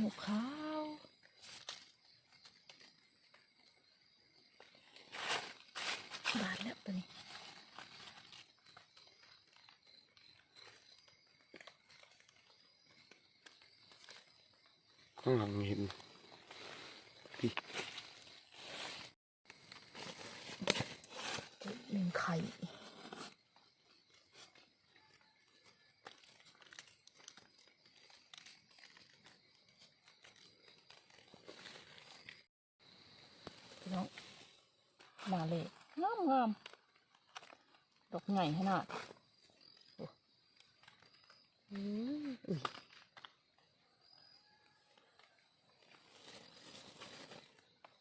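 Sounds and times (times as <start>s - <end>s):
dry leaf litter crackling: 4.8s - 9.7s, 26.0s - 32.3s, 45.8s - 47.7s.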